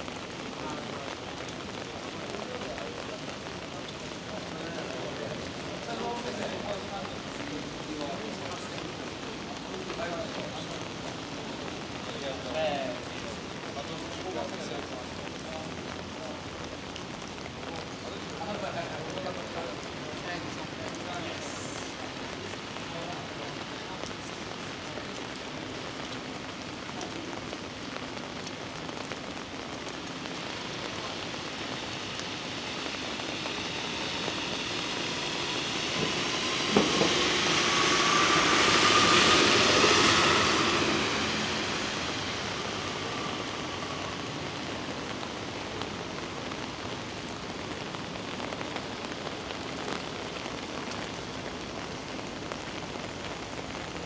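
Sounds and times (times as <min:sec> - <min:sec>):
heavy rain: 0:00.0 - 0:54.0
faint rising whine: 0:31.2 - 0:44.8.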